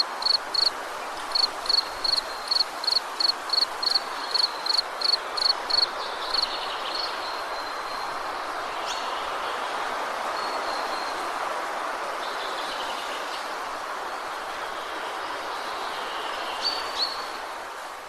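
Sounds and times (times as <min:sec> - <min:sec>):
high insect chirps: 0:00.0 - 0:00.7, 0:01.3 - 0:06.4.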